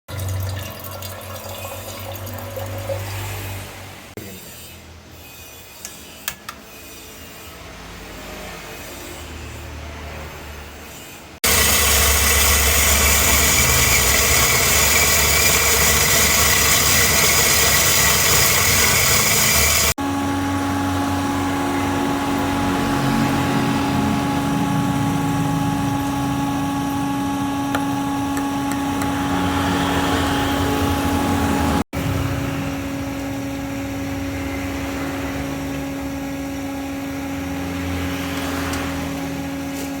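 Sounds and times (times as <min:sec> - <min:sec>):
espresso machine hissing whir: 0:11.4 - 0:40.0
steady machine hum: 0:11.4 - 0:40.0.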